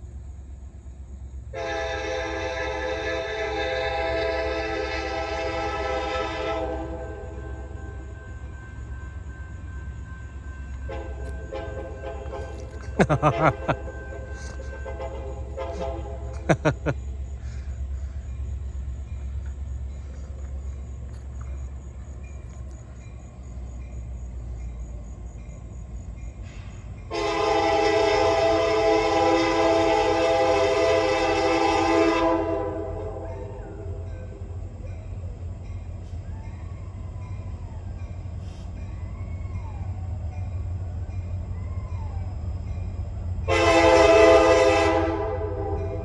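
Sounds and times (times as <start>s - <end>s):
diesel locomotive rumbling: 0.0s - 46.0s
train air horn blast: 1.5s - 8.1s, 10.8s - 16.5s, 26.6s - 34.1s, 43.4s - 46.0s.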